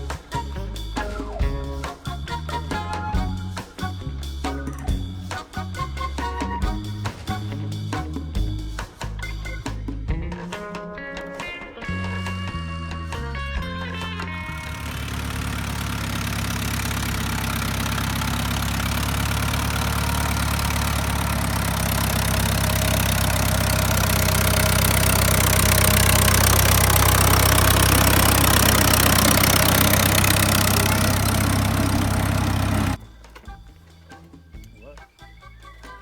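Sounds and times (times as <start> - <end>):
tractor engine running: 13.6 - 33.6.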